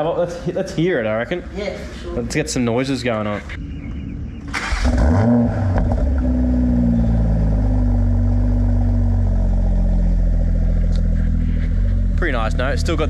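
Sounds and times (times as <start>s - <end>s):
car engine idling: 2.2s - 13.0s.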